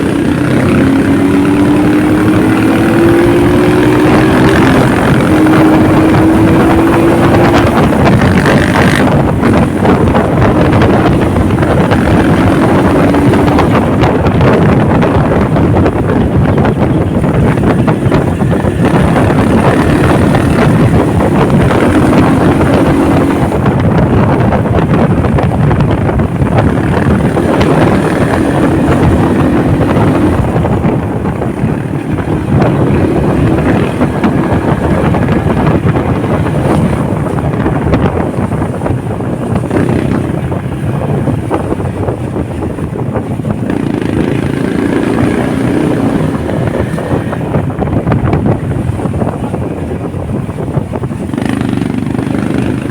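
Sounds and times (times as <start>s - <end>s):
motorcycle engine hum: 0.0s - 52.9s
wind rush on microphone: 0.0s - 52.9s.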